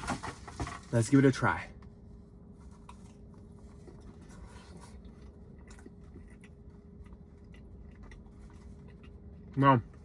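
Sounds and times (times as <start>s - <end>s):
chewing food: 2.8s - 10.0s.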